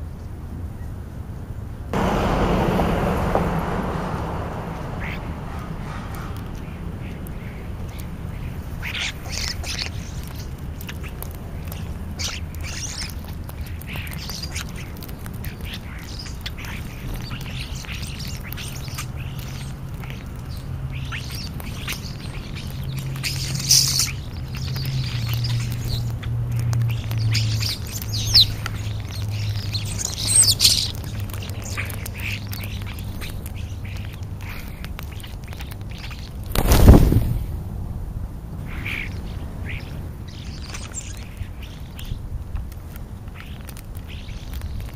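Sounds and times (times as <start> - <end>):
steady low hum: 1.6 - 30.2
bird squawks and chirps: 4.8 - 26.2.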